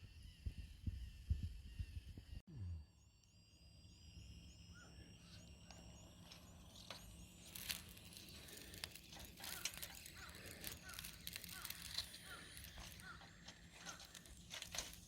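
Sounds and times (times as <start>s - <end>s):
sharp clicks and crackles: 5.7s - 15.0s.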